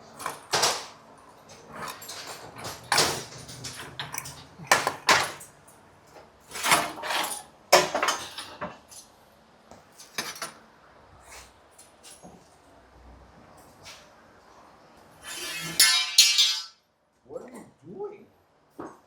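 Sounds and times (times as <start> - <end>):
metal hardware clinking and clattering: 0.1 - 5.8, 15.8 - 16.7.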